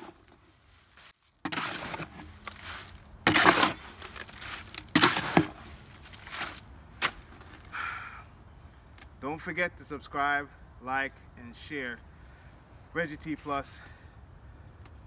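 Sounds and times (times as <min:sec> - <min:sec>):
tool scraping through concrete mix: 0:01.0 - 0:07.7.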